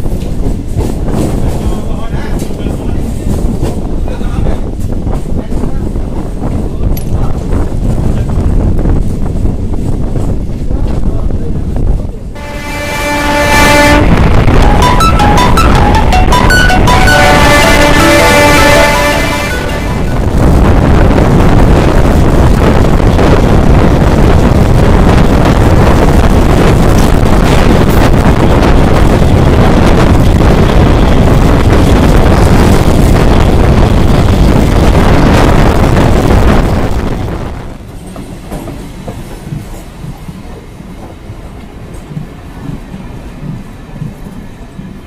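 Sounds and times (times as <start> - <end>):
electric train wind and rail noise: 0.0 - 45.0.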